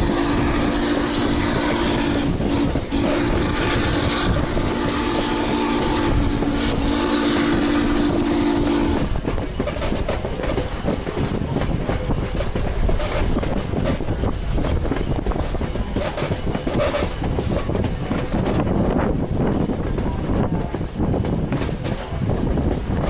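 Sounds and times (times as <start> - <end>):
train rumble: 0.0 - 23.0
wheels clicking over rail joints: 9.0 - 23.0.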